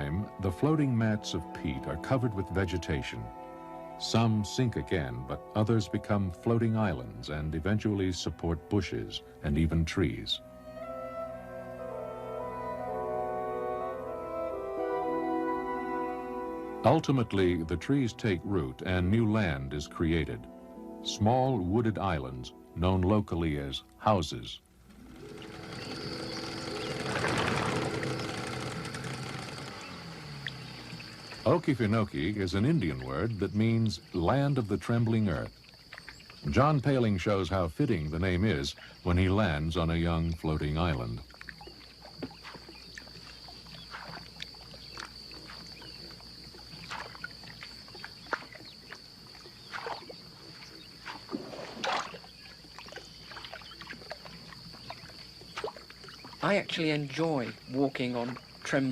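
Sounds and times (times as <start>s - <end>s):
steady high whine: 24.6s - 33.8s
water splashing and sloshing: 24.6s - 37.4s, 40.5s - 58.9s
engine passing by: 24.9s - 33.1s.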